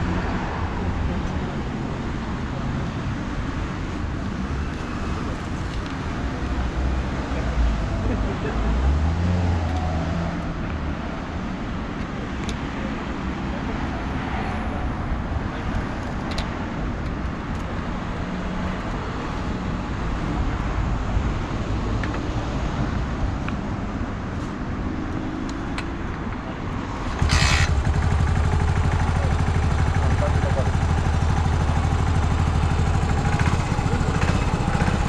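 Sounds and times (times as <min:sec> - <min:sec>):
vehicle engine running: 0:27.1 - 0:35.0.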